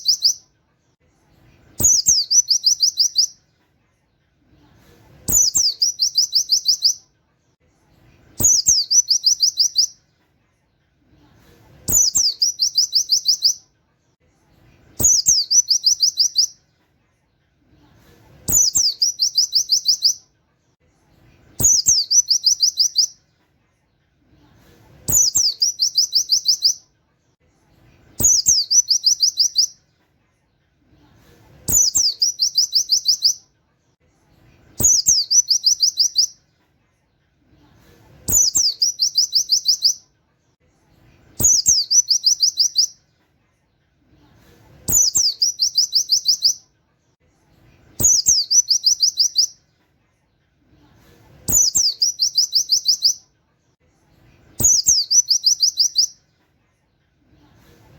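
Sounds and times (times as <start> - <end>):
bird singing rapid song: 0.0 - 0.4, 1.8 - 3.4, 5.3 - 7.0, 8.4 - 10.0, 11.9 - 13.6, 15.0 - 16.6, 18.5 - 20.2, 21.6 - 23.2, 25.1 - 26.8, 28.2 - 29.8, 31.7 - 33.4, 34.8 - 36.4, 38.3 - 40.0, 41.4 - 43.0, 44.9 - 46.6, 48.0 - 49.6, 51.5 - 53.2, 54.6 - 56.2.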